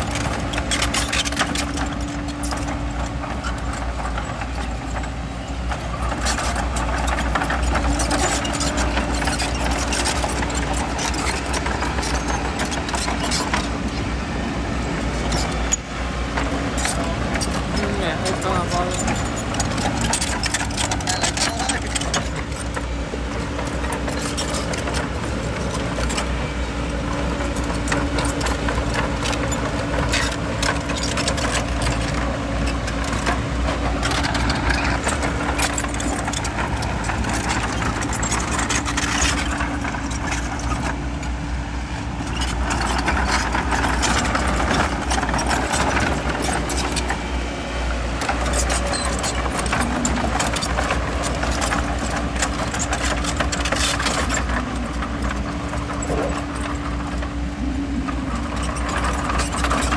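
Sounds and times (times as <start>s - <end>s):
bulldozer diesel engine: 0.0s - 59.9s
metallic clanks and rattles: 0.0s - 59.9s.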